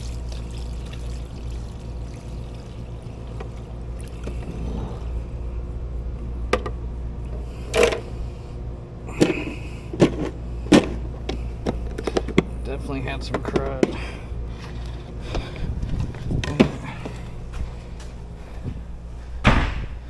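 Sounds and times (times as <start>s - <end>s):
low machine hum: 0.0s - 20.0s
equipment knocks and clatters: 9.2s - 12.5s, 13.2s - 17.7s.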